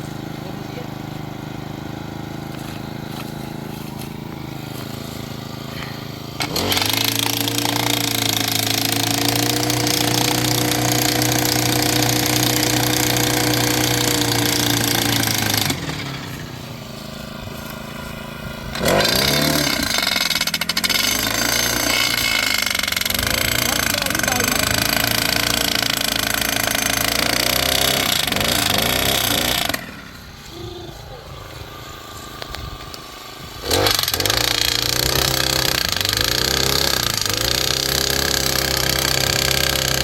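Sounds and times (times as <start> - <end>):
engine idling: 0.0 - 40.0
post driver hammering: 5.8 - 16.1, 18.8 - 30.0, 33.6 - 40.0.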